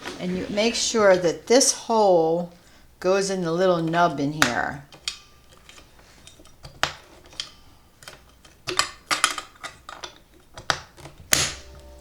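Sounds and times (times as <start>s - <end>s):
light irregular clicks and clatters: 3.8s - 11.5s.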